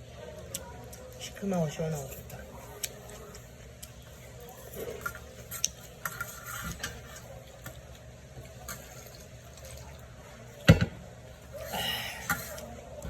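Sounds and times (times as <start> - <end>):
soft liquid sounds: 0.0 - 13.0
light eating clicks: 0.3 - 5.8.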